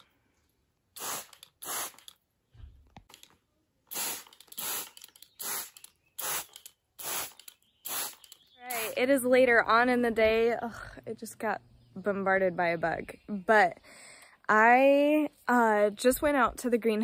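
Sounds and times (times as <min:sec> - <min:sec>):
spray bottle hissing sprays: 0:01.0 - 0:02.2, 0:03.9 - 0:08.4.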